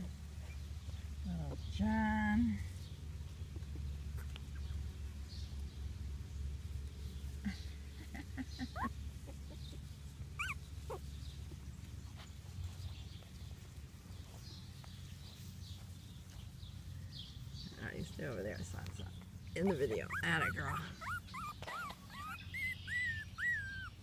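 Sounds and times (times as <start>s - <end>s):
puppies whining and squeaking: 8.5s - 11.3s, 19.6s - 24.0s.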